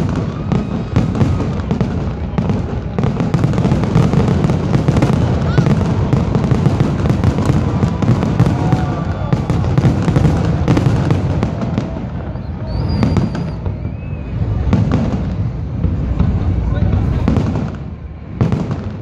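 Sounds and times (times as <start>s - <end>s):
rapid firework bangs: 0.0s - 19.0s
continuous low rumble: 13.3s - 19.0s.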